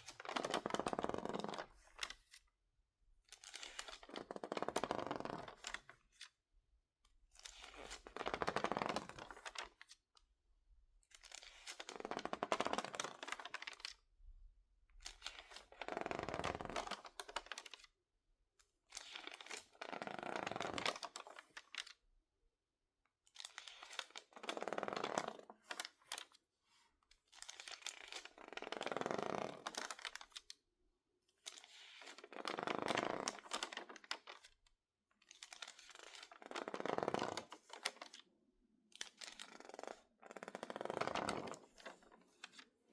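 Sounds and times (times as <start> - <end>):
crinkly paper pages rustling: 0.0 - 2.4, 3.3 - 6.3, 7.4 - 10.0, 11.2 - 14.0, 15.0 - 17.9, 19.0 - 22.0, 23.4 - 26.4, 27.2 - 30.6, 31.4 - 38.2, 39.0 - 42.9.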